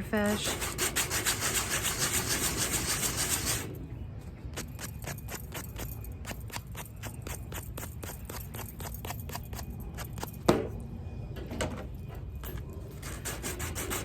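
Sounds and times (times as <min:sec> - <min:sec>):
sandpaper scratching jewelry: 0:00.2 - 0:03.7, 0:04.5 - 0:10.5, 0:12.5 - 0:14.0.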